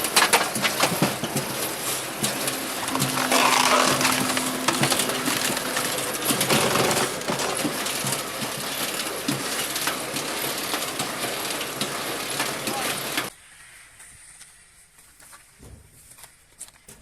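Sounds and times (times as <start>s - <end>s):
wood pieces knocking and clattering: 2.2s - 8.8s
wood crunching and cracking: 2.7s - 8.3s.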